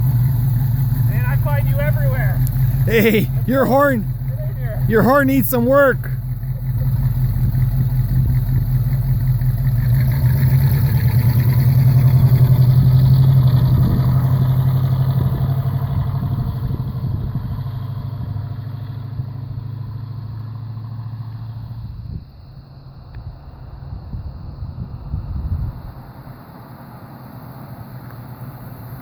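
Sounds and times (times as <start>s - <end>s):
low engine drone: 0.0s - 16.1s.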